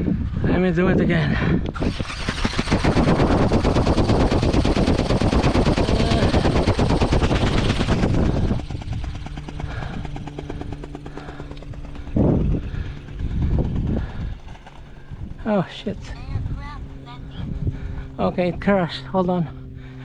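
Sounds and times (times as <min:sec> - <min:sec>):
loud burst of noise: 0:01.7 - 0:10.1
toy bird motor rattling buzz: 0:01.7 - 0:17.4.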